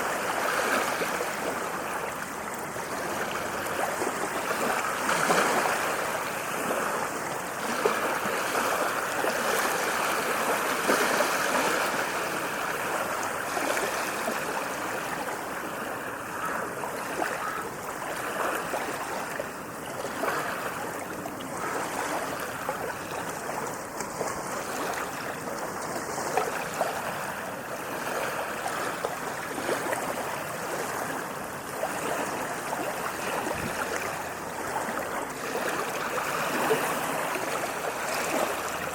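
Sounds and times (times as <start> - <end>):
waves washing on a beach: 0.0 - 38.9.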